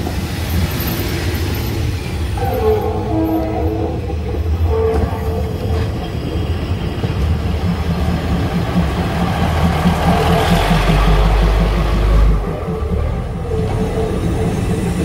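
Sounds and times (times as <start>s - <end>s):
diesel train engine rumbling: 0.0s - 15.0s
train horn: 2.4s - 6.4s.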